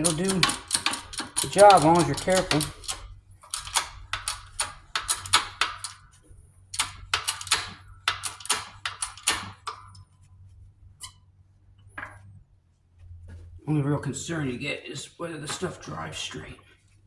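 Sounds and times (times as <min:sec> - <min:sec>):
sharp metallic clicks and taps: 0:00.0 - 0:06.0, 0:06.8 - 0:10.0
steady low hum: 0:00.0 - 0:17.0.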